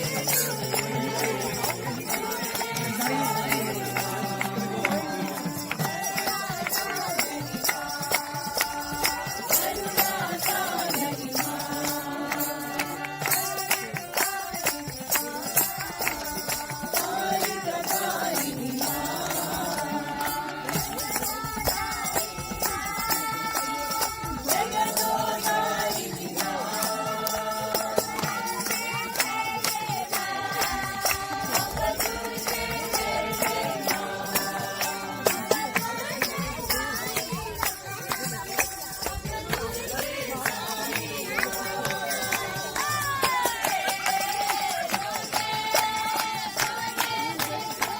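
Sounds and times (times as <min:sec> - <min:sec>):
group singing devotional song: 0:00.0 - 0:47.9
jingling hand percussion: 0:00.0 - 0:47.9.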